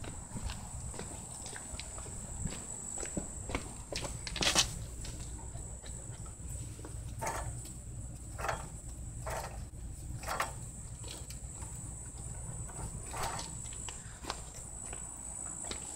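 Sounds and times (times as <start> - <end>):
short scuffing sounds: 0.0 - 5.4
crickets chirring: 0.0 - 15.9.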